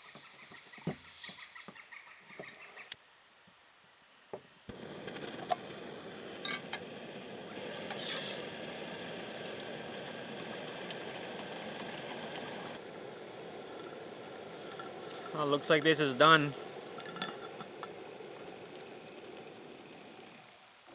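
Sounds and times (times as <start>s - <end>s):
camp stove hissing: 4.7s - 20.9s.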